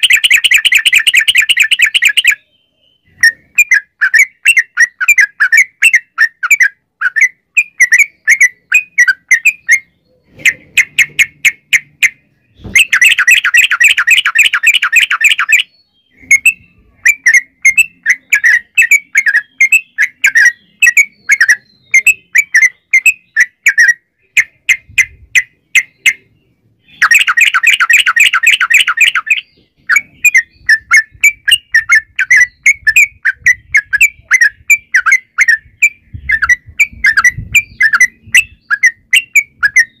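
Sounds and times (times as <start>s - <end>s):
bird rapid trill: 0.0s - 40.0s
bird bubbly chirps: 26.9s - 35.6s.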